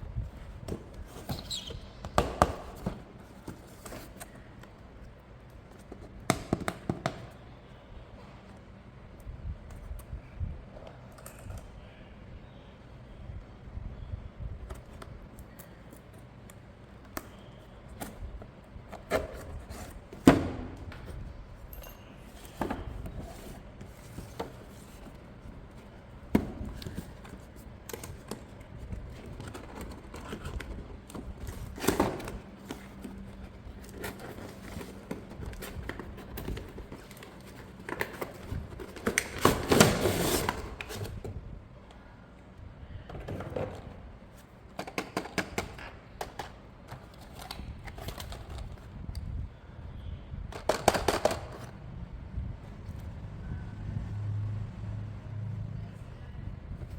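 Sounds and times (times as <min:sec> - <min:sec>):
packaging rustling and clattering: 0:26.6 - 0:41.2
plastic parts clicking and knocking: 0:50.5 - 0:51.7.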